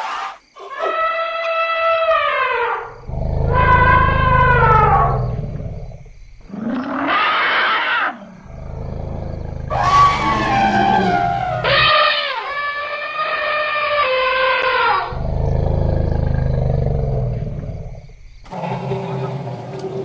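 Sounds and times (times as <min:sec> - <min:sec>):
deep rumble: 0:02.8 - 0:06.5, 0:08.4 - 0:12.0, 0:15.1 - 0:18.5
elephants trumpeting: 0:03.0 - 0:05.5, 0:08.5 - 0:12.6.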